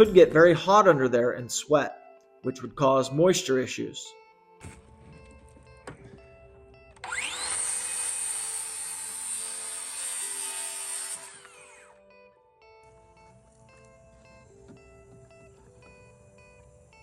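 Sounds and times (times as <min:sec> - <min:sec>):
electric saw cutting wood: 0:07.0 - 0:12.1.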